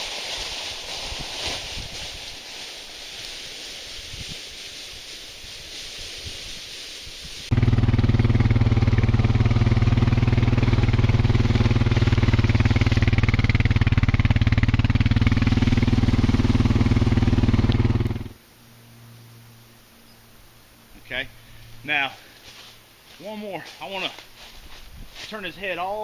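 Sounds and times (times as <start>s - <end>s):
engine running steadily: 7.5s - 18.4s.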